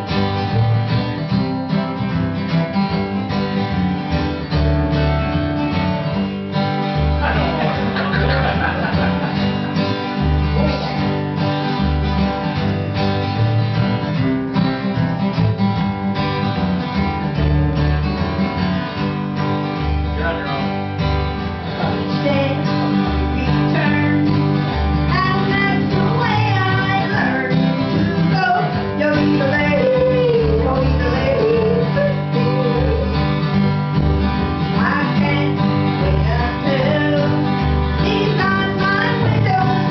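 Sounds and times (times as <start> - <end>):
country band playing: 0.0 - 39.9
sliding lead guitar line: 0.0 - 39.9
strummed acoustic guitar: 0.0 - 39.9.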